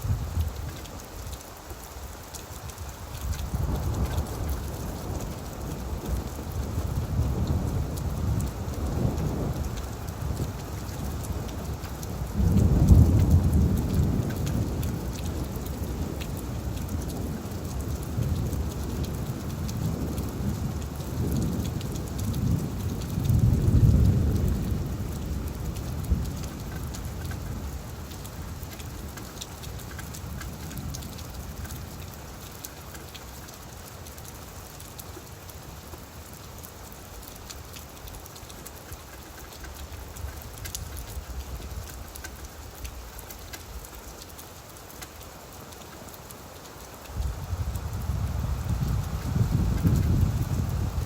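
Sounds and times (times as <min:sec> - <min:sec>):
rain falling on leaves: 0:00.0 - 0:51.0
distant thunder rumble: 0:03.6 - 0:29.1, 0:47.2 - 0:51.0.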